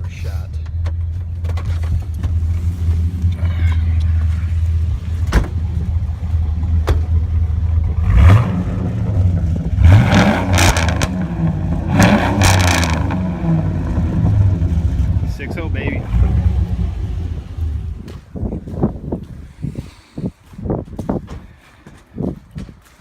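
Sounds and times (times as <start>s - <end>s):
rasping exhaust surges: 1.8s - 18.1s
engine revving: 7.4s - 18.0s.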